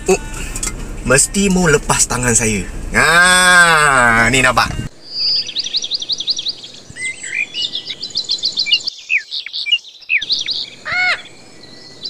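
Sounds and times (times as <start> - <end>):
birds chirping and whistling: 4.7 - 12.0.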